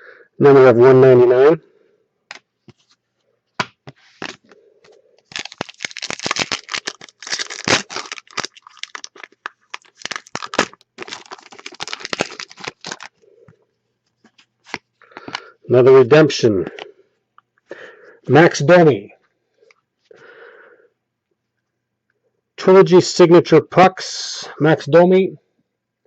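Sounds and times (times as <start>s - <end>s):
card packaging crinkling and tearing: 4.0s - 4.6s, 5.2s - 13.2s, 14.3s - 15.5s.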